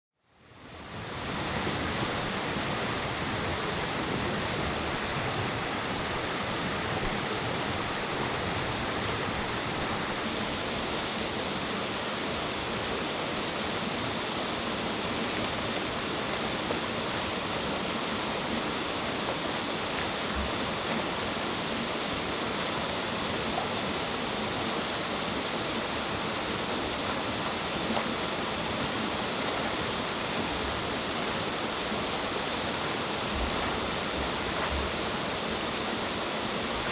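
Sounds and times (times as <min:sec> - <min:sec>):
rush of flowing water: 0:00.2 - 0:36.9.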